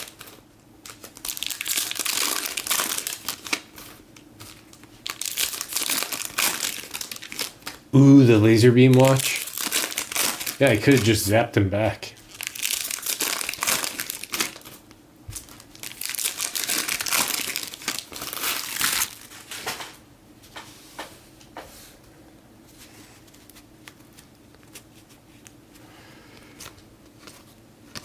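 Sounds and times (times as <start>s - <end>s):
foil wrappers tearing and crinkling: 0.0s - 11.2s, 12.2s - 19.9s.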